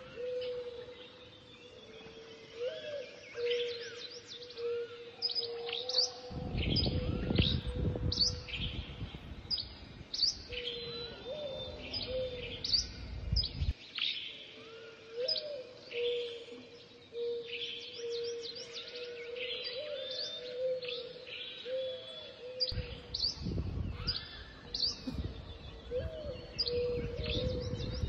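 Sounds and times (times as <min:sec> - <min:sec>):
birds singing and chirping: 0:00.0 - 0:28.0
wind gust rumbling: 0:06.3 - 0:13.7, 0:22.7 - 0:28.0.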